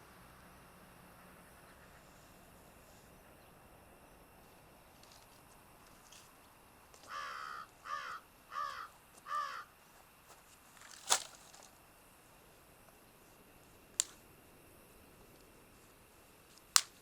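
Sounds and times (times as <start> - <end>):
crow cawing: 7.0 - 9.8.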